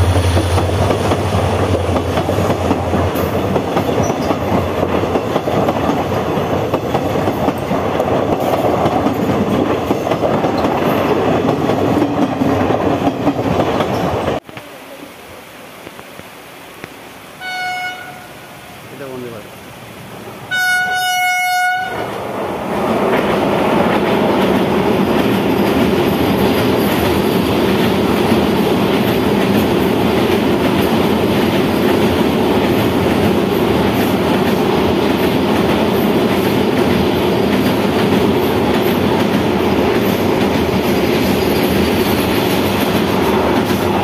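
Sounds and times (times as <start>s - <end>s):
train wheels rumbling over bridge: 0.0s - 14.4s, 20.1s - 44.0s
wheels clickety-clack: 0.4s - 14.4s, 23.0s - 44.0s
train horn: 17.4s - 18.6s, 20.5s - 22.2s.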